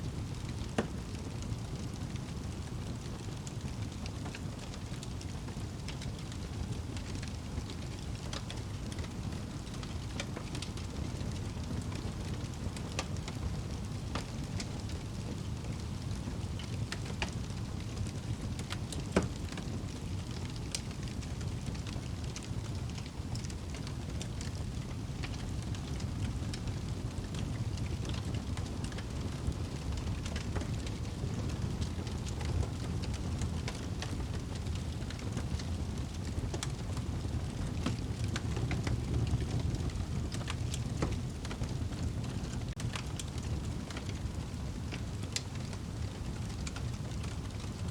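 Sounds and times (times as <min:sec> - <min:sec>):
wood fire crackling: 0:00.0 - 0:47.9.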